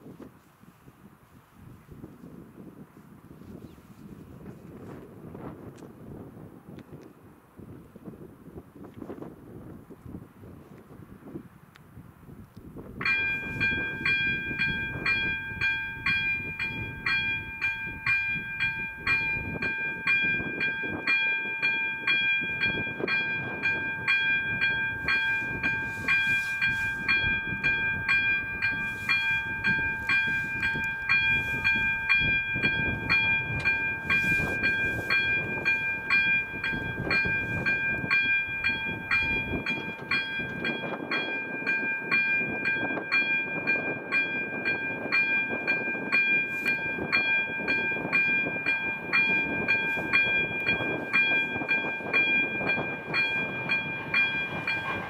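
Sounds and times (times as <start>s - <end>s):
level-crossing warning bell ringing: 13.0s - 55.0s.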